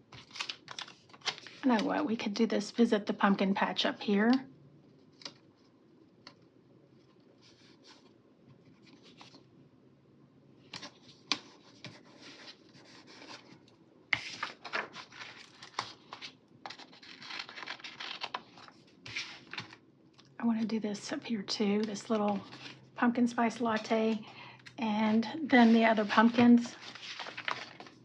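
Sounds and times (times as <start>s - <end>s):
paper rustling and scratching: 0.1s - 1.9s, 10.7s - 19.8s, 21.8s - 22.8s, 25.1s - 28.0s.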